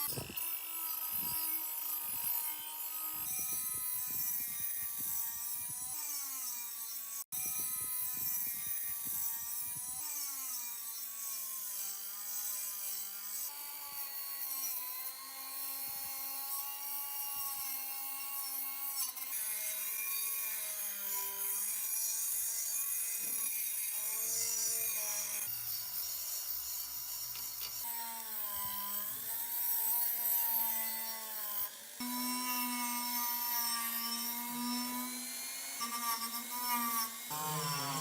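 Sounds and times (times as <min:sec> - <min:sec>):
power tool motor whining: 0:00.0 - 0:06.8, 0:15.2 - 0:38.0.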